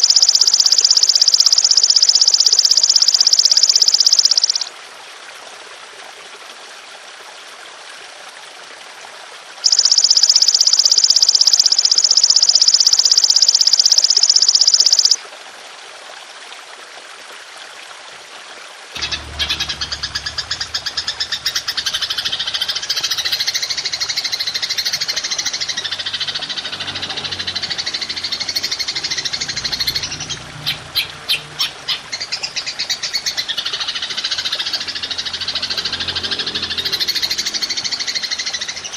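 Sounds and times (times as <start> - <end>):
grasshopper buzzing trill: 0.0 - 4.7, 9.6 - 15.2, 19.0 - 31.4
pulsing insect buzzing chorus: 0.0 - 4.7, 9.6 - 15.2, 19.0 - 38.8
trickle of water: 0.0 - 38.9
low rumble: 19.0 - 23.1.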